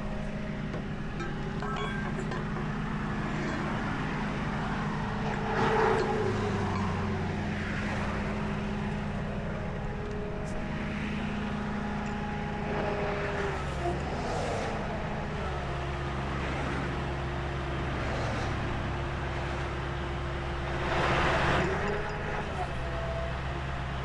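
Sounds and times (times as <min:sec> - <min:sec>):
engine idling hum: 0:00.0 - 0:24.0
vehicles passing by: 0:00.0 - 0:24.0.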